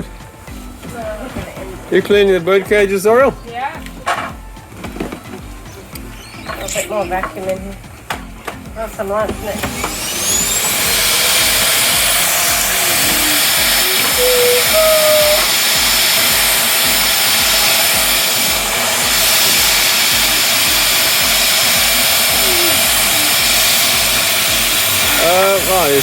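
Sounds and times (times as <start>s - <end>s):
vacuum cleaner motor whining: 9.2s - 26.0s.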